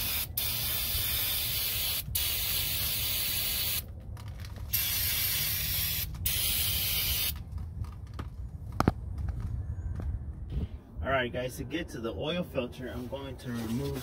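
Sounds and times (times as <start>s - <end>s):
aerosol can spraying: 0.0s - 3.8s, 4.7s - 7.4s.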